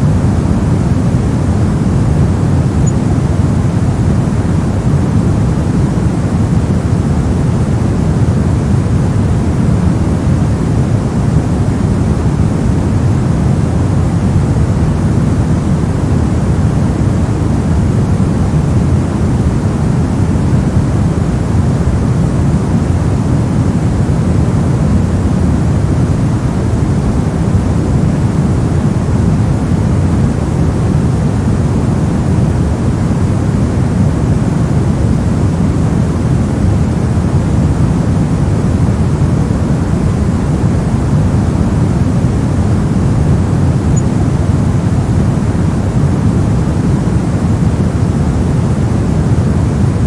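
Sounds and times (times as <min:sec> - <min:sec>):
low synthetic noise rush: 0:00.0 - 0:50.0.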